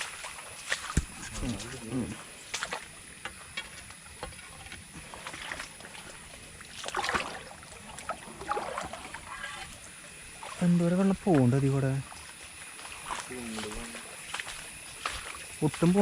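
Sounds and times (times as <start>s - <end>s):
water sloshing and splashing: 0.0s - 16.0s
low water wash: 3.8s - 15.9s.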